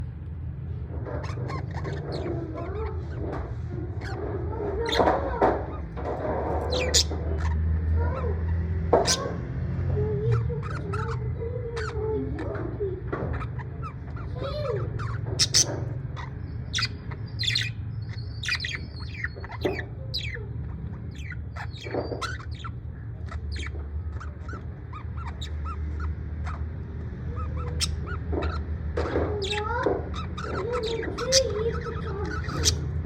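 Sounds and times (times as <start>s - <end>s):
parrot chirps and squawks: 0.8s - 33.0s.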